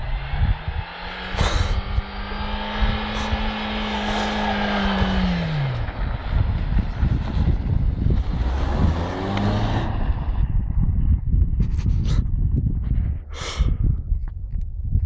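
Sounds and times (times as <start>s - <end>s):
car engine revving: 0.0s - 10.6s
wind rumble on microphone: 0.0s - 15.0s.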